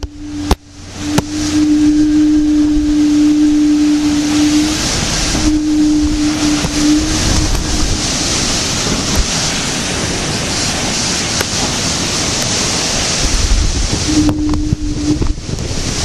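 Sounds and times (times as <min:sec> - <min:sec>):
low horn-like tone: 0:00.0 - 0:09.0, 0:13.9 - 0:15.6
wind and driving rain: 0:00.0 - 0:16.0
wind buffeting microphone: 0:00.0 - 0:16.0.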